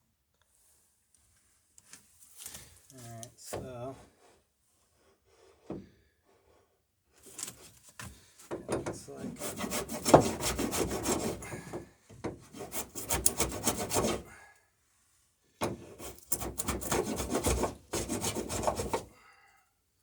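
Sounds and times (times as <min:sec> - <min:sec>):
block plane shaving wood: 0:09.1 - 0:14.3, 0:15.8 - 0:19.1.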